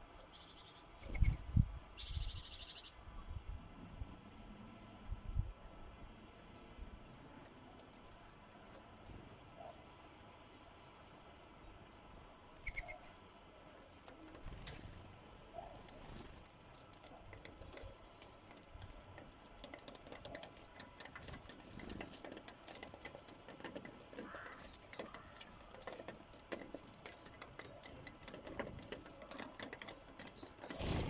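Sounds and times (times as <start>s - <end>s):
beaks tapping on bird feeder: 16.9s - 30.8s.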